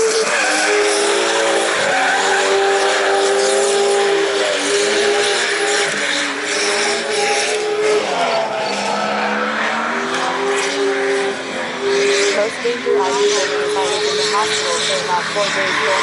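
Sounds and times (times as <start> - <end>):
car engine at high revs: 0.0 - 16.0
tyres squealing: 0.1 - 10.0.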